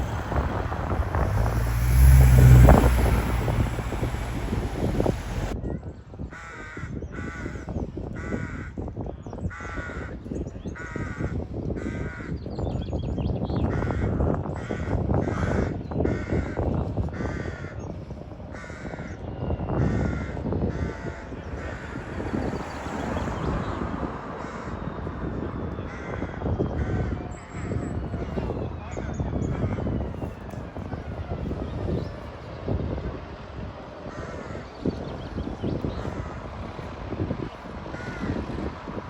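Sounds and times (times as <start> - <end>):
low steady rumble: 0.0 - 5.6
crows cawing: 38.0 - 38.4.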